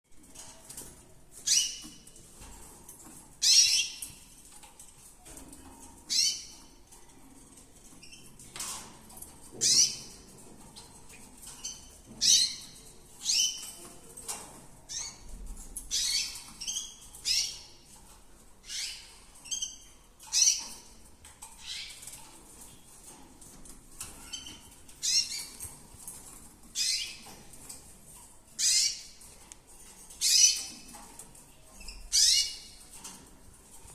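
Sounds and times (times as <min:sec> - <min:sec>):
canary chirping: 0:00.2 - 0:33.9.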